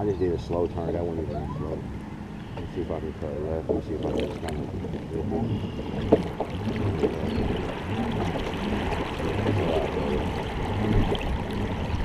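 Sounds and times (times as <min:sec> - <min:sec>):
low pulses: 0:00.0 - 0:12.0
water sloshing along a hull: 0:00.0 - 0:12.0.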